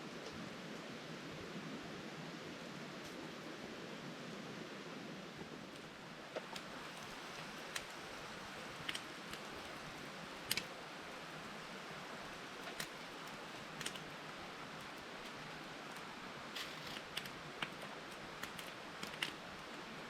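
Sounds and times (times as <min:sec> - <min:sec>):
campfire crackling and popping: 0:05.7 - 0:20.0.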